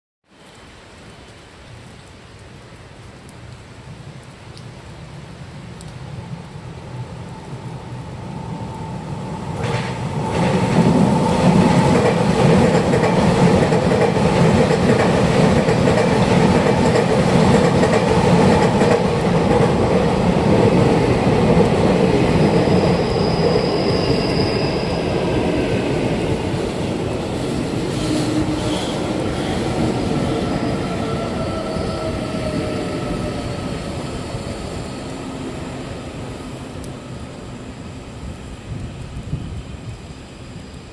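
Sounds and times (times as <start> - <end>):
train wheels on rails: 8.3 - 37.6.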